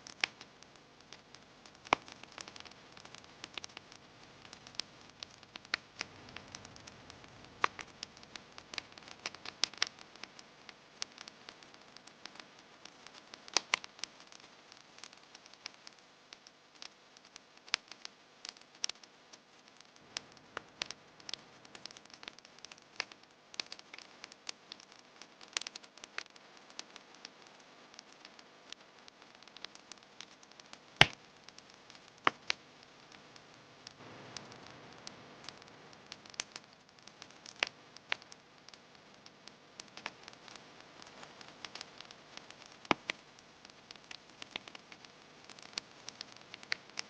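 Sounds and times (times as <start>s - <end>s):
campfire crackling and popping: 0.0s - 47.0s
faint steady hiss: 0.0s - 47.0s
loud fire snap: 1.8s - 10.3s, 13.5s - 13.9s, 31.0s - 31.2s, 33.8s - 39.2s, 39.8s - 43.2s, 43.9s - 47.0s.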